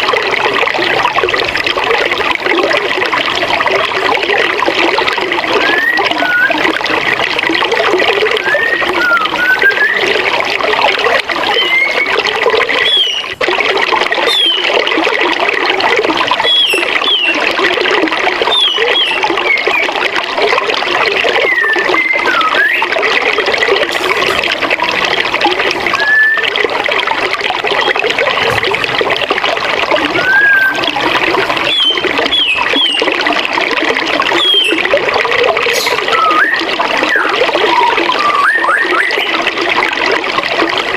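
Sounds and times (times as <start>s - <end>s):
birds chirping: 12.8s - 13.4s, 14.3s - 14.7s, 16.4s - 17.4s, 18.5s - 20.0s, 29.9s - 33.2s, 34.3s - 34.8s, 35.7s - 39.3s.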